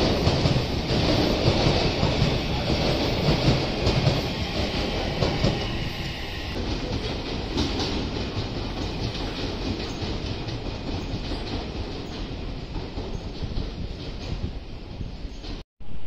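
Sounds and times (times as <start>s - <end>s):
electric train passing: 0.0s - 12.7s
wheels clacking on rails: 0.0s - 15.6s.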